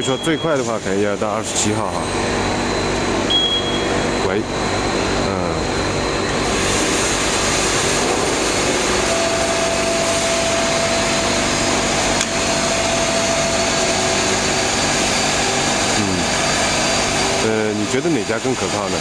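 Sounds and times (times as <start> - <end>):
extrusion machinery running: 0.0 - 19.0
thin steady whine: 0.0 - 19.0.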